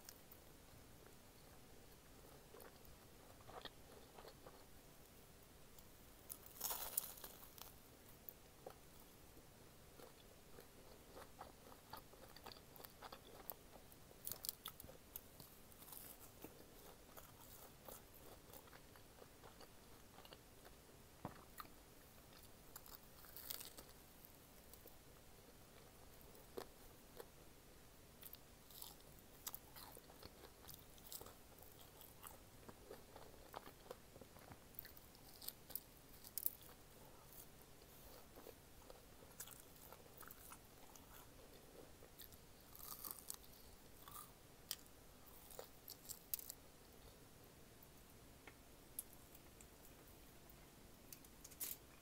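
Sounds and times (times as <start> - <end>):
person chewing crunchy snacks: 2.5 - 4.7, 6.3 - 7.8, 10.0 - 20.4, 22.3 - 23.9, 28.2 - 46.6.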